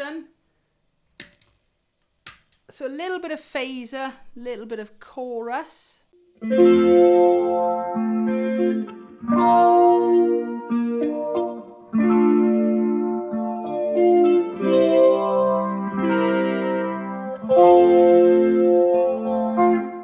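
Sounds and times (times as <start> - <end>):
electric ukulele chords with effects: 6.4 - 20.0.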